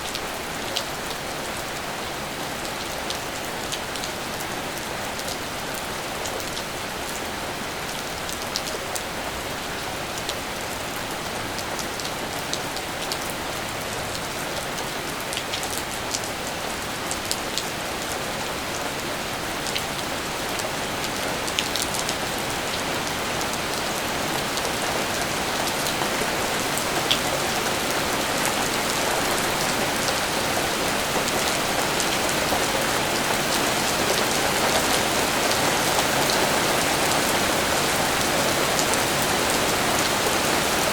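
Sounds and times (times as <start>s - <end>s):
steady rainfall: 0.0s - 40.9s.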